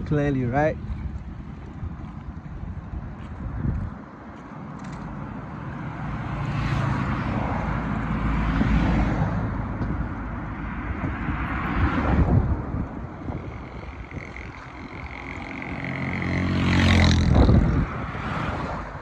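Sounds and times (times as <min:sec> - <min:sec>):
vehicle passing rush: 0:00.0 - 0:19.0
vehicle rumble: 0:00.0 - 0:19.0.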